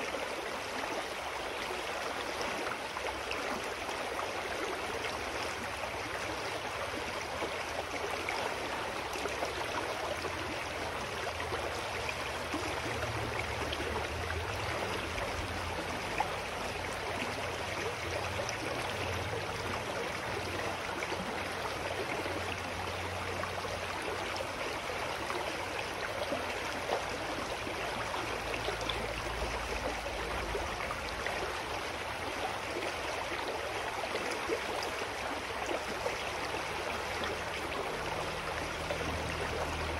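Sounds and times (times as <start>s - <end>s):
stream rushing and babbling: 0.0s - 39.9s.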